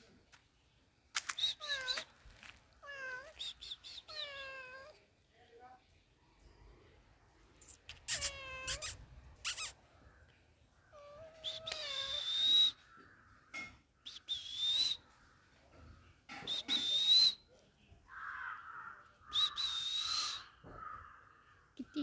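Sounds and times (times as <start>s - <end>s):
cat meowing: 1.4s - 5.0s, 7.7s - 9.8s, 10.9s - 12.6s.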